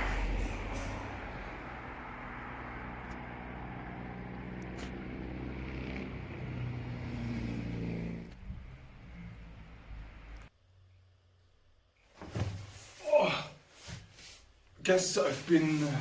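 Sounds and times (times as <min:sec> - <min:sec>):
vehicle engine running: 0:00.0 - 0:10.5.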